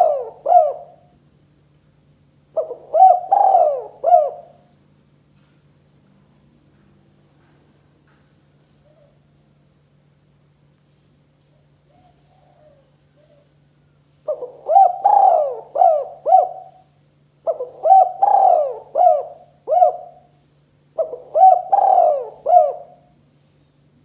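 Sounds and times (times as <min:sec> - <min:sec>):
dove cooing: 0:00.0 - 0:01.2, 0:02.5 - 0:04.7, 0:11.9 - 0:13.5, 0:14.2 - 0:20.4, 0:21.0 - 0:23.2.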